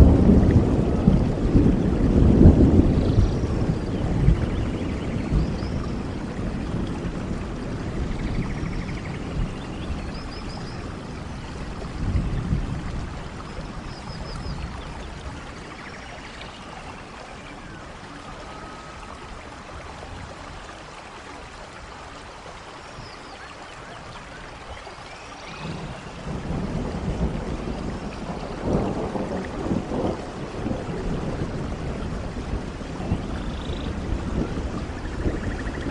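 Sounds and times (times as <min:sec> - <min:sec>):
thunder rumbling: 0:00.0 - 0:20.6, 0:25.5 - 0:35.9
steady rain falling: 0:00.0 - 0:35.9.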